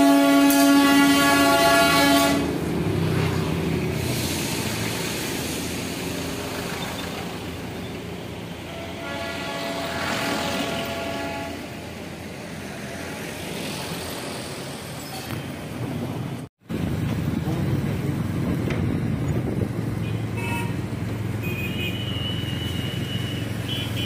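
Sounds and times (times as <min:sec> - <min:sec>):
train horn: 0:00.0 - 0:02.6, 0:08.6 - 0:11.8, 0:20.4 - 0:20.8
train engine noise: 0:00.0 - 0:21.4.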